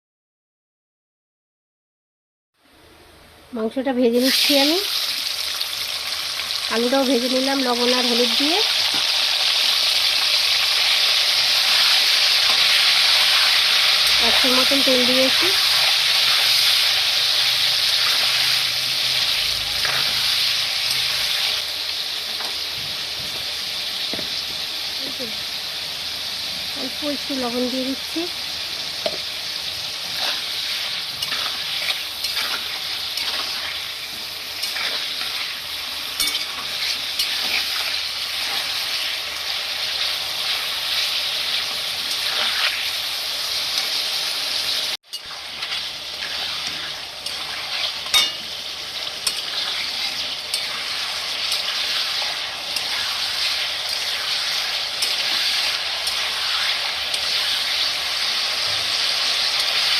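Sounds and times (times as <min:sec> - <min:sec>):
chicken sizzling in oil: 0:04.0 - 0:59.9
spatula scraping pan: 0:30.1 - 0:33.9, 0:34.6 - 0:35.6, 0:45.2 - 0:48.5.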